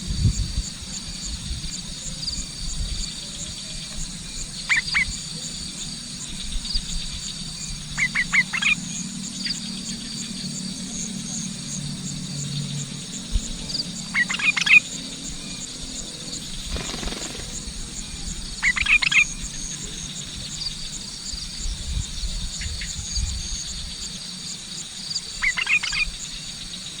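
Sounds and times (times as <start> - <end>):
insects trilling: 0.0 - 27.0
bird chattering calls: 16.5 - 17.8, 25.3 - 26.1.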